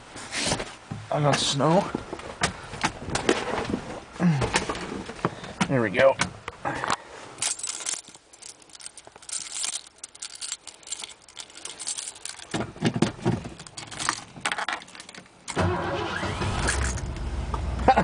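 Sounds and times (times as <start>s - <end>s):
keys jangling: 7.4s - 12.5s, 13.5s - 15.2s
truck engine starting and running: 15.5s - 18.0s.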